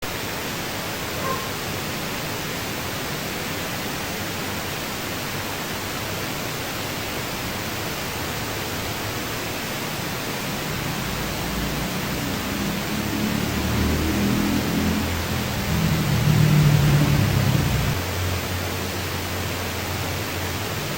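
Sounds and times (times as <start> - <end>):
steady hiss: 0.0 - 20.9
low rumble: 10.0 - 18.4.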